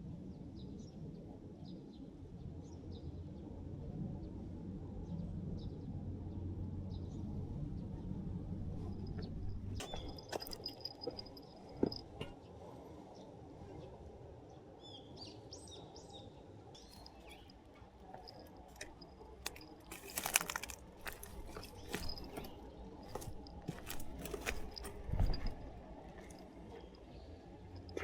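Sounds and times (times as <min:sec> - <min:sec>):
rustling and clicking handling noises: 0:08.7 - 0:12.3, 0:16.8 - 0:27.0
small bird chirping: 0:16.8 - 0:25.5.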